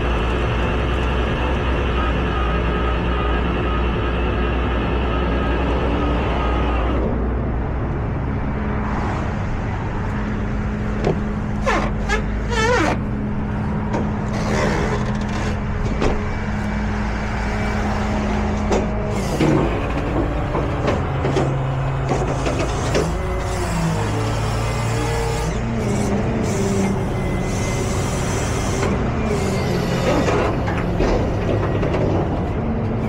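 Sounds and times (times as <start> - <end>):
truck engine running: 0.0 - 8.5, 9.8 - 33.0
clanks and knocks: 13.8 - 16.4, 18.6 - 23.2, 30.0 - 32.6.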